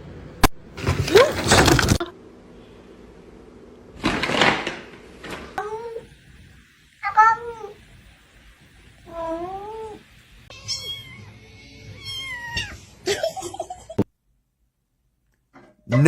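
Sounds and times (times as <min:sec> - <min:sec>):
cat meowing: 0:09.1 - 0:12.9.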